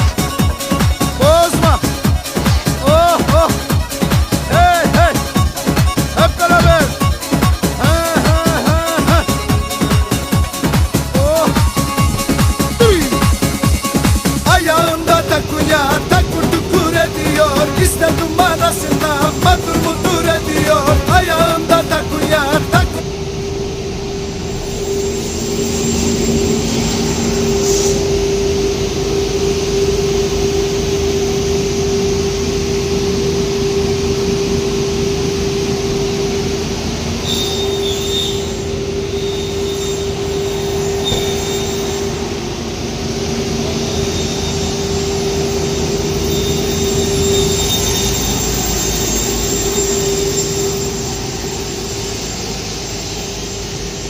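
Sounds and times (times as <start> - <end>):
machine whining and rumbling: 0.0 - 54.0
faint high whistle: 24.5 - 28.7, 37.2 - 42.4, 43.8 - 53.9.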